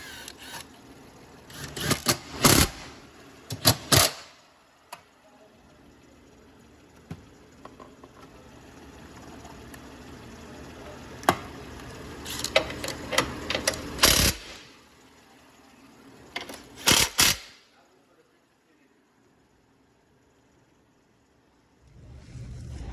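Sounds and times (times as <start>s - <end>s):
steady mechanical noise: 0.0s - 22.9s
tools clicking and clanking: 1.5s - 2.9s, 3.5s - 5.0s, 12.2s - 14.7s, 16.3s - 17.6s.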